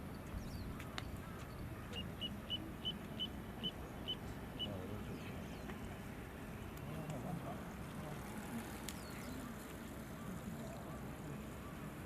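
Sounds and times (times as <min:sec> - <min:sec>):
bird peeping: 0:00.3 - 0:05.7.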